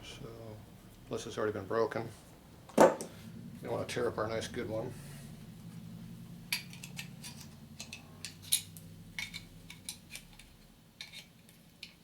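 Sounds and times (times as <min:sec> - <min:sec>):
low hum: 0:02.3 - 0:10.8
metal clicks and clinks: 0:06.5 - 0:12.0.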